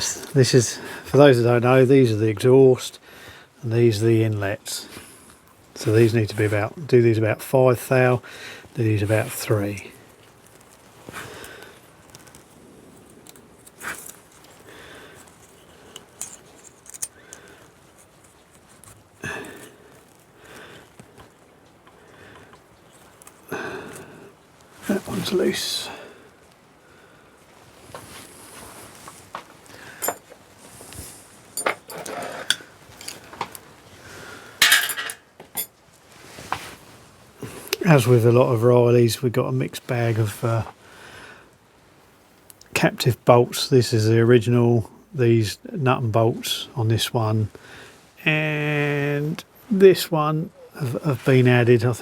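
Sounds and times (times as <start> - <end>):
metal hand tools clinking: 30.0 - 30.3, 31.6 - 33.3, 34.6 - 35.7
metal rattling scrape: 31.6 - 33.2.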